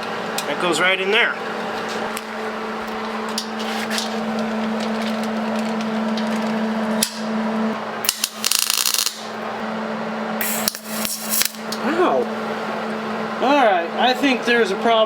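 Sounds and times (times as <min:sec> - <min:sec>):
electric welder arc buzzing: 0:01.6 - 0:14.1.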